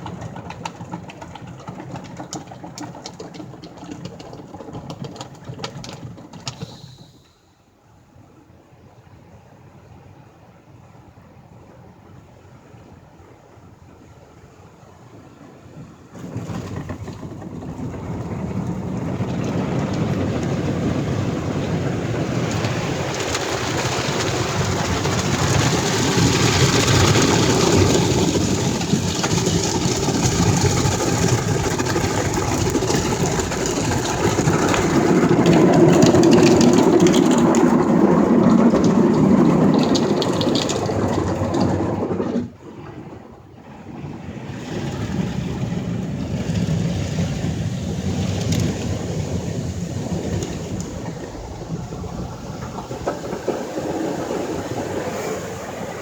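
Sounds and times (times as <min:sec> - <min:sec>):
water spray drumming on car: 0:00.8 - 0:07.4, 0:16.2 - 0:42.1
car wash machine running: 0:16.2 - 0:43.2, 0:44.0 - 0:56.0.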